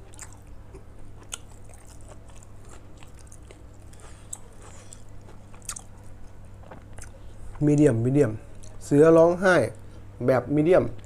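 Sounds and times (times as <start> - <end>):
person chewing food: 0.0 - 7.7.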